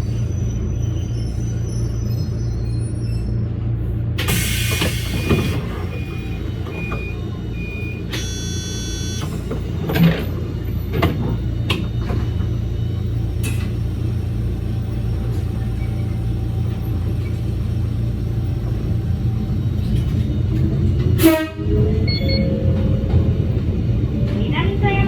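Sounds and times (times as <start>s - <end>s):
electric train rumbling: 0.0s - 25.0s
brief electronic tone: 6.8s - 9.3s, 21.9s - 22.9s
short high beeps: 8.2s - 9.2s.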